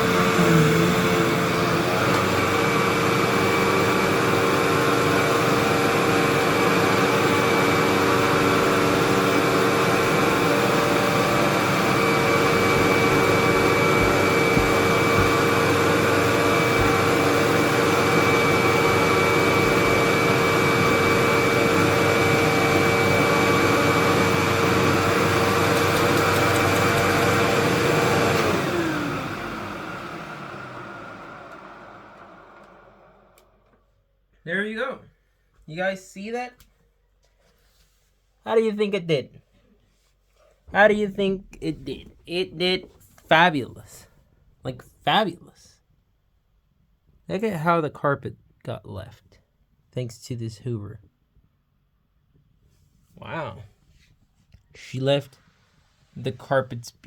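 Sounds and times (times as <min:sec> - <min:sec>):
vacuum cleaner running: 0:00.0 - 0:33.8.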